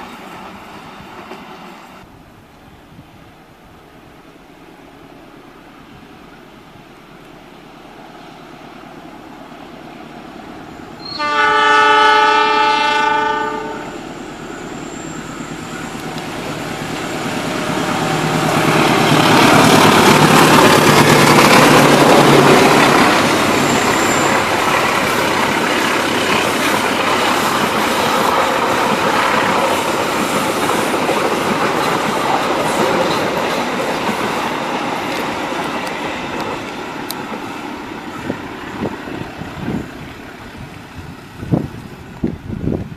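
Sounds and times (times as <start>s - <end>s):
train passing on rails: 0.0s - 42.9s
locomotive horn blast: 11.0s - 14.1s.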